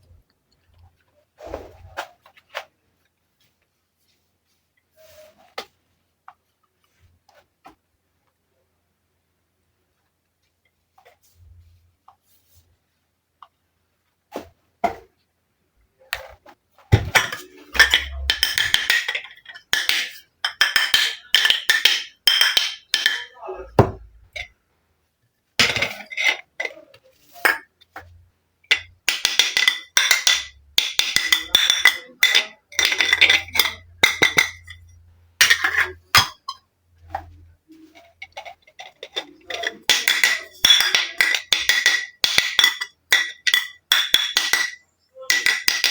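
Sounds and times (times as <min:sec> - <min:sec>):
plastic toy dishes clattering: 0:17.0 - 0:24.5, 0:25.6 - 0:28.1, 0:28.7 - 0:45.9.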